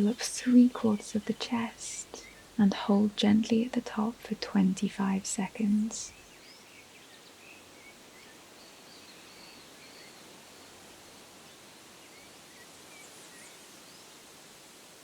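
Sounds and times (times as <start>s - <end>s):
distant birds chirping: 0.0s - 10.8s
soft even hiss: 0.0s - 15.0s.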